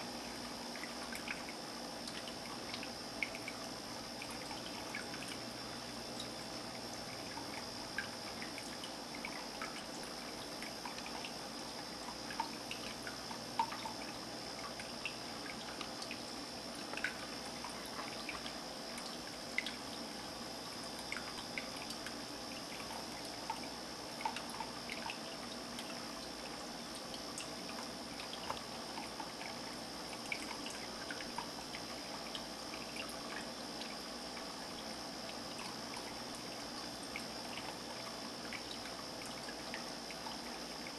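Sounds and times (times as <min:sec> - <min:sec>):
water trickling in fountain: 0:00.0 - 0:40.9.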